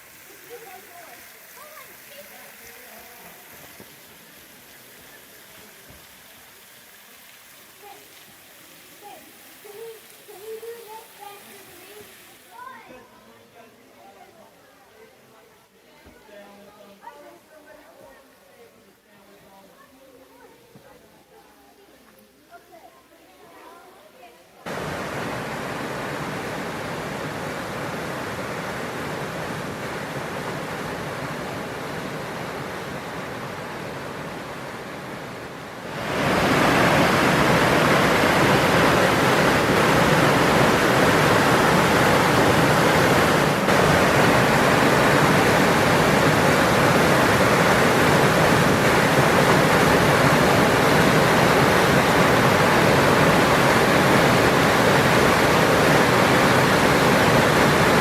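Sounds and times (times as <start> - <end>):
waterfall rushing: 0.0 - 12.9, 24.6 - 58.0.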